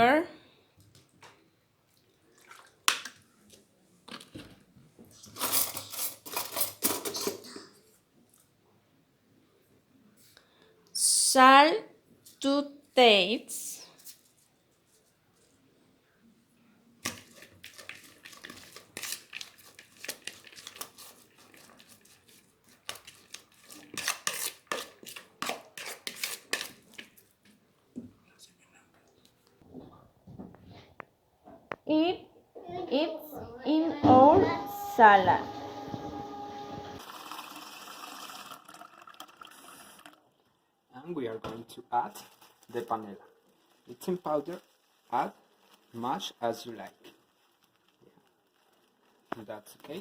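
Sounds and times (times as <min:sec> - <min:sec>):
dishes and utensils clinking: 0:05.2 - 0:07.8, 0:17.0 - 0:27.2
rustling: 0:17.0 - 0:27.6
liquid pouring: 0:37.0 - 0:40.4.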